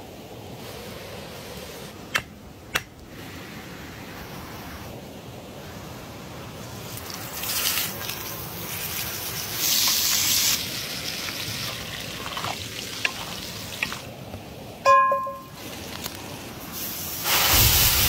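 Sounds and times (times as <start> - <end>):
steak sizzling in oil: 7.0 - 14.0.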